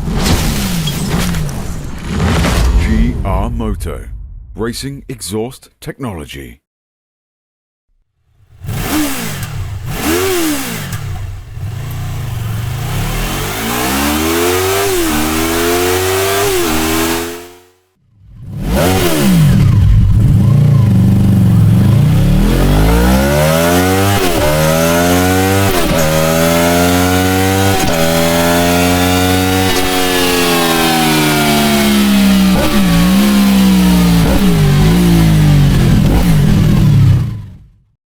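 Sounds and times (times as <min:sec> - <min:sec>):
motorcycle engine shifting gears: 0:08.4 - 0:37.8.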